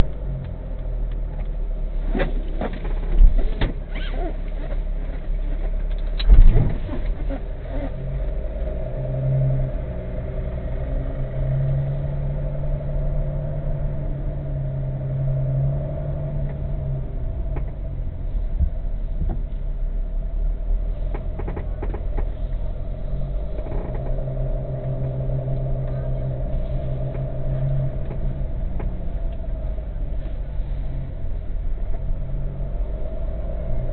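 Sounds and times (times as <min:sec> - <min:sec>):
car engine and road rumble: 0:00.0 - 0:33.9.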